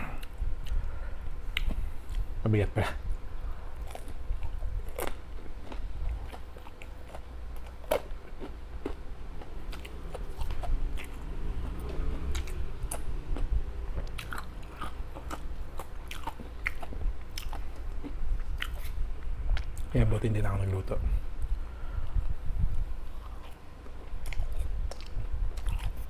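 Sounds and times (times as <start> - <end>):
chewing and biting food: 3.8 - 19.9, 22.1 - 26.0.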